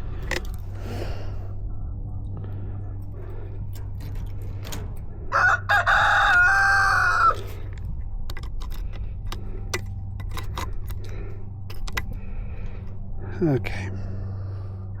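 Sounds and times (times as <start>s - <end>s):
low hum: 0.0s - 15.0s
rooster crowing: 5.3s - 7.5s.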